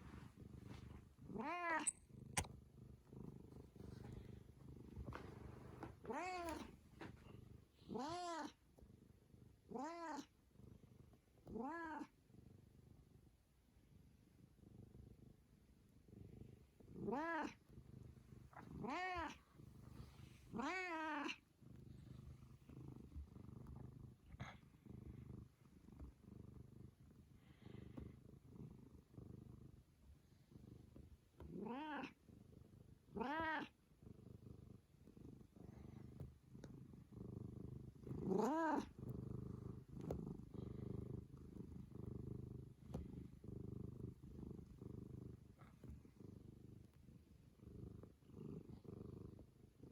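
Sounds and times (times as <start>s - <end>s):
cat purring: 0.0s - 49.9s.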